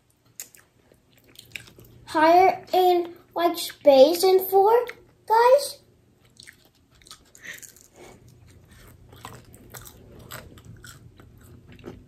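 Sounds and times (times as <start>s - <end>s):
chewing crispy fried chicken: 0.0s - 2.1s, 6.1s - 12.0s.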